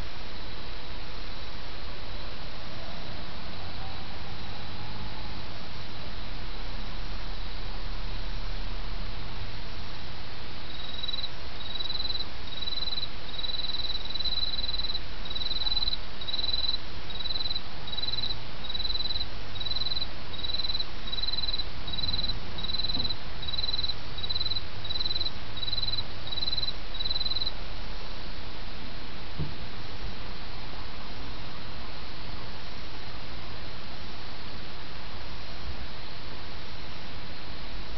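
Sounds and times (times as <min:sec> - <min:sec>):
insect chirping: 0:10.6 - 0:27.6.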